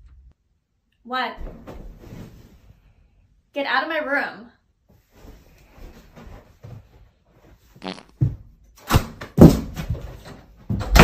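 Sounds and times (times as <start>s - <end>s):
sharp knocks and thuds: 8.2s - 11.0s.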